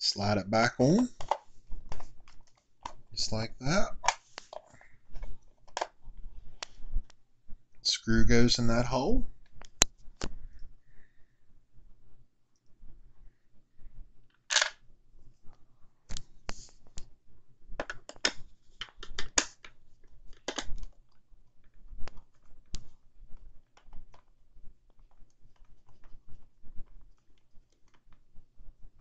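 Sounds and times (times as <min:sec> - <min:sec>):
plastic parts clicking and scraping: 0:01.0 - 0:03.1, 0:03.9 - 0:06.8, 0:14.3 - 0:14.8, 0:17.8 - 0:29.0.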